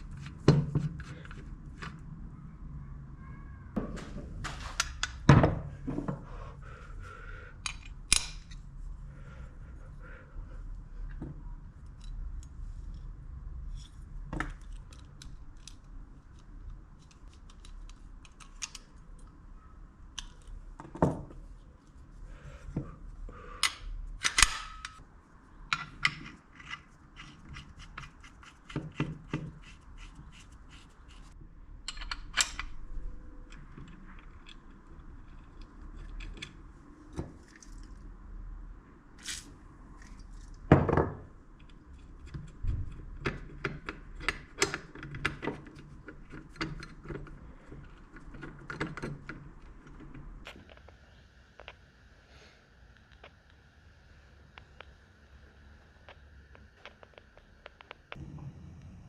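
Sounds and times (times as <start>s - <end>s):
tools and metal parts clicking: 7.6s - 8.6s, 13.7s - 19.3s, 23.6s - 25.0s, 31.8s - 36.7s
faint low hum: 45.7s - 59.0s.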